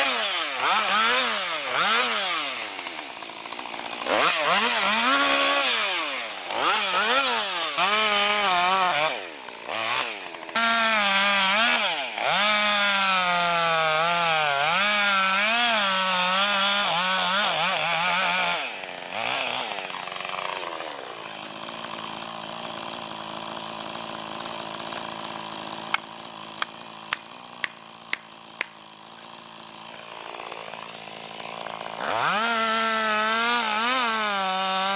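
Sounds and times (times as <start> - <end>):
chainsaw revving and cutting: 0.0 - 34.9
sharp cracks: 25.9 - 28.8.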